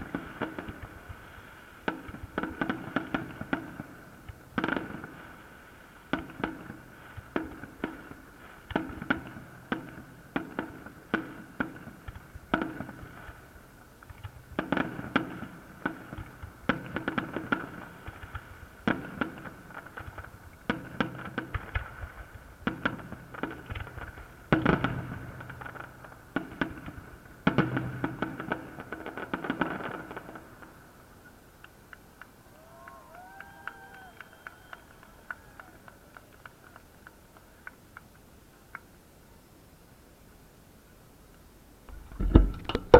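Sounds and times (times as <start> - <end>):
fireworks bursts and bangs: 0.0 - 38.9.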